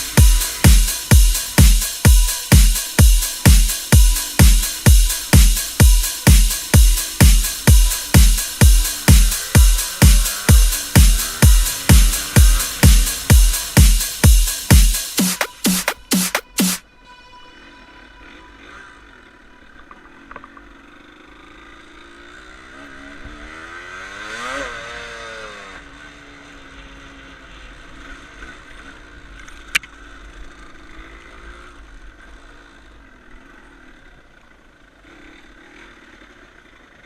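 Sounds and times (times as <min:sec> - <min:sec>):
dirt bike engine revving: 0:00.0 - 0:16.8, 0:21.1 - 0:26.6.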